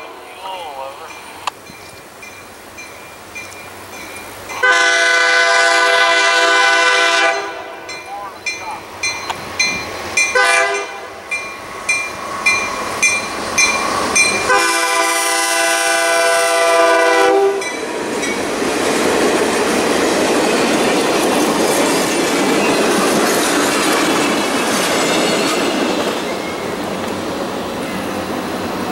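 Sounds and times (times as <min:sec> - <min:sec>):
crossing bell ringing: 0:00.0 - 0:04.9, 0:07.3 - 0:15.0, 0:17.5 - 0:18.6, 0:25.1 - 0:27.0
train wheel and rail noise: 0:00.0 - 0:28.9
locomotive air horn blasts: 0:04.6 - 0:07.8, 0:10.3 - 0:11.2, 0:14.5 - 0:17.7.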